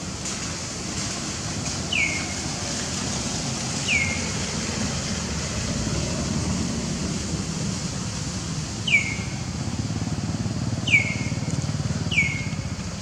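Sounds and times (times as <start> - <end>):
bird chirps sweeping downward: 1.9 - 2.2, 3.8 - 4.2, 8.8 - 9.3, 10.8 - 11.4, 12.1 - 12.6.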